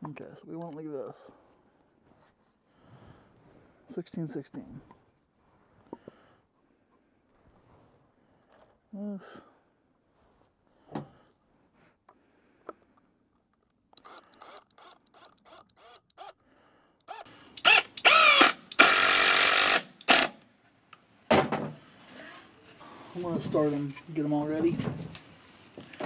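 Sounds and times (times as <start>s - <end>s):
cordless drill motor whine: 14.0s - 16.4s, 17.1s - 20.3s.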